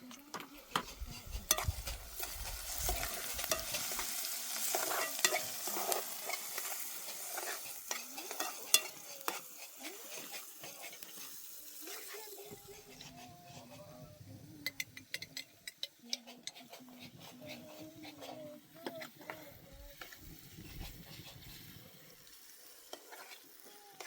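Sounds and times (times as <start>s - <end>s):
food sizzling in a pan: 0.0s - 24.0s
scraping clicks of stirring: 14.6s - 19.4s.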